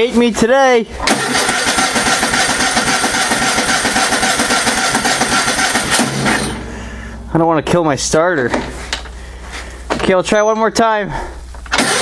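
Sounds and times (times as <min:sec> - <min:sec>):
small engine cranking: 0:01.0 - 0:06.5, 0:11.7 - 0:12.0.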